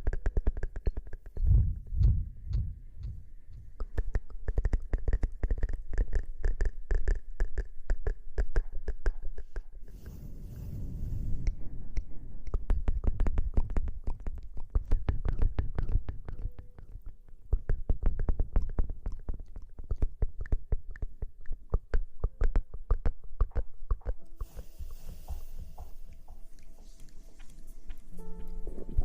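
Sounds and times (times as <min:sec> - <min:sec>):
soft hiss: 0:09.7 - 0:13.4, 0:24.3 - 0:29.0.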